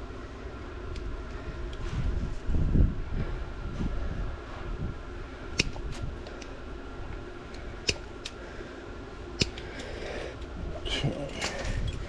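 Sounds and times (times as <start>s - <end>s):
handling noise rumble: 1.8s - 12.0s
sharp clicks: 9.4s - 10.0s.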